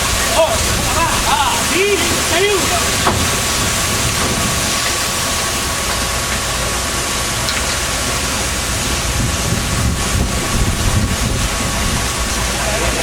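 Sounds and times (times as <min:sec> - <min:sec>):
wind noise: 0:00.0 - 0:05.8, 0:08.5 - 0:13.0
boat engine drone: 0:00.0 - 0:13.0
rushing water: 0:00.0 - 0:13.0.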